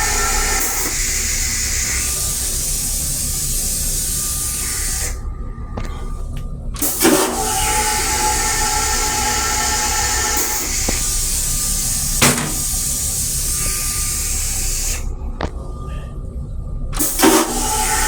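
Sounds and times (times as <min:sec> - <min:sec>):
train running rumble and hiss: 0:00.0 - 0:18.0
faint hum: 0:10.7 - 0:17.9.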